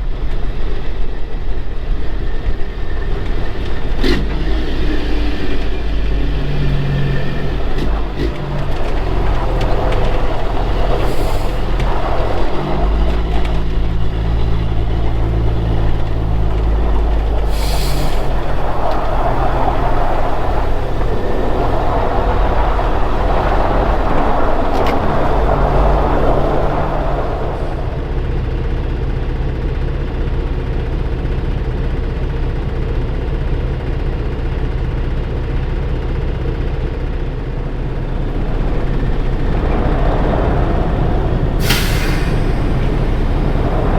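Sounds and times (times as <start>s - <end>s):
diesel truck engine running: 0.0s - 43.9s
road noise: 0.0s - 43.9s
short air hisses: 17.4s - 21.0s, 41.6s - 43.9s.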